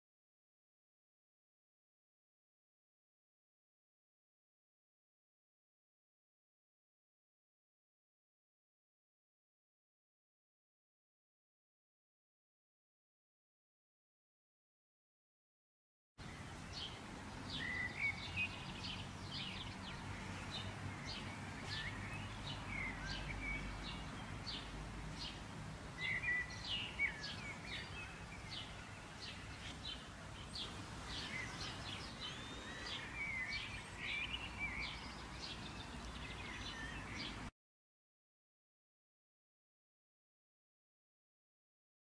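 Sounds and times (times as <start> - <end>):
songbirds chirping and singing: 16.2 - 37.5.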